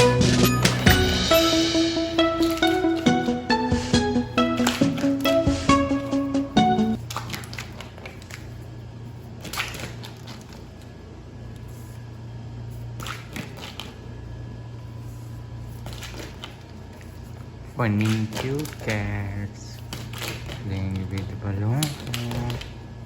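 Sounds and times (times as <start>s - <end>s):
background music: 0.0s - 7.0s.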